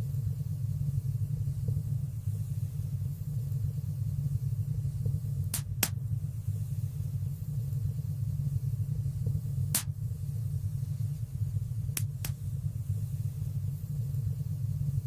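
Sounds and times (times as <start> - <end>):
low rumble of flames: 0.0 - 15.0
fire crackling pops: 5.0 - 6.3, 9.2 - 10.6, 11.4 - 12.8.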